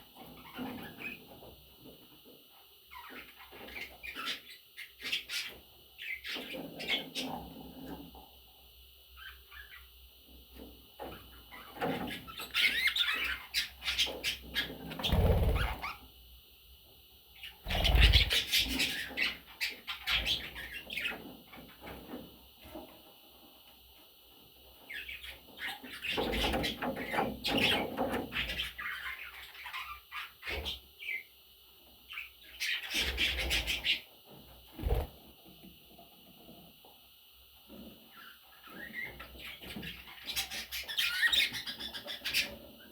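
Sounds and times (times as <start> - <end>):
budgerigars chirping: 17.7 - 19.2.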